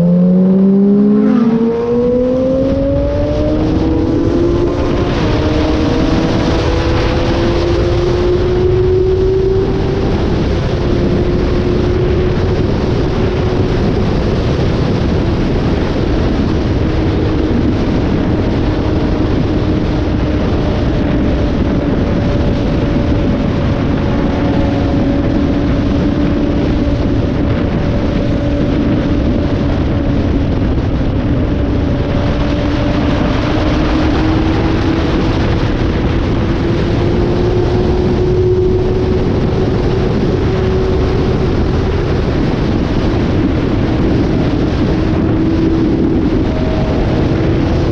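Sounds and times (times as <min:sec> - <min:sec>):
motorcycle engine cruising: 0:00.0 - 0:47.9
wind rush on microphone: 0:00.0 - 0:47.9.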